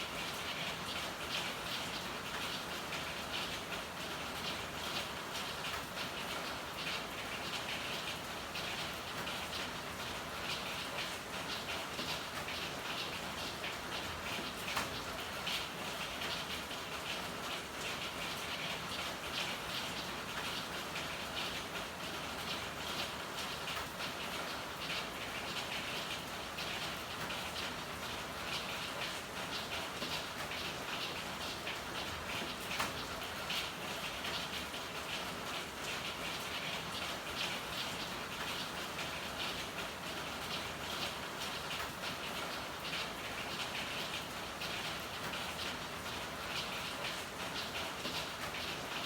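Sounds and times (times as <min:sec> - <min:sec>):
rain falling: 0:00.0 - 0:49.0.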